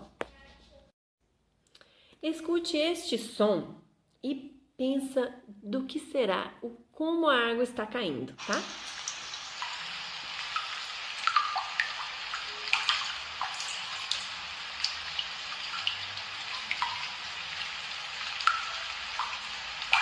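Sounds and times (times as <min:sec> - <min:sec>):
steady hiss: 0:08.4 - 0:20.0
water drops plinking: 0:10.6 - 0:17.3, 0:18.4 - 0:20.0.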